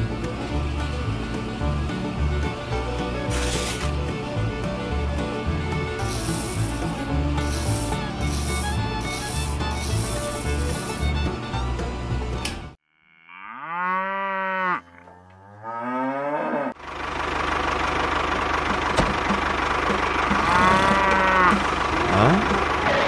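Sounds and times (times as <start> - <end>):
steady engine sound: 0.0 - 12.4, 16.8 - 23.0
cow mooing: 12.9 - 16.8, 20.4 - 23.0.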